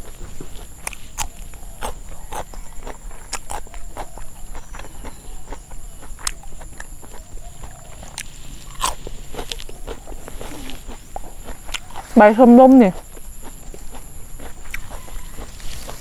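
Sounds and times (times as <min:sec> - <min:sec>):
crisp chewing crunches: 0:00.0 - 0:16.0
mouth clicks: 0:00.8 - 0:12.1.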